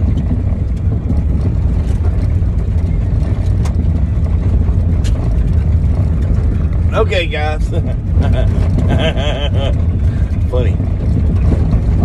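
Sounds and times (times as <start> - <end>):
road noise: 0.0 - 12.0
vehicle engine rumble: 0.0 - 12.0.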